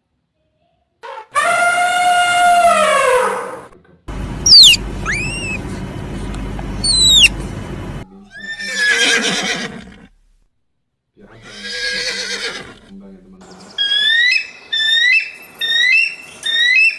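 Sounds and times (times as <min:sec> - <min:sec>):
steady noisy background: 0:04.1 - 0:08.0
sharp high falling calls: 0:04.4 - 0:07.4
horse neighing: 0:06.8 - 0:07.4, 0:08.4 - 0:10.2, 0:11.4 - 0:12.9.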